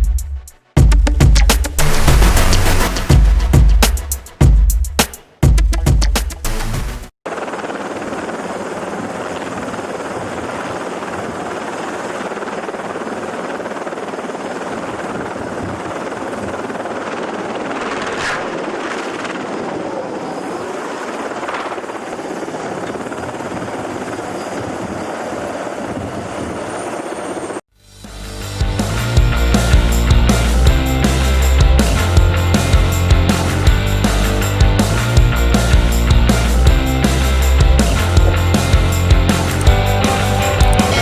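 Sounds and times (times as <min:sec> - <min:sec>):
helicopter rotor and engine drone: 0:07.2 - 0:27.7, 0:29.0 - 0:41.0.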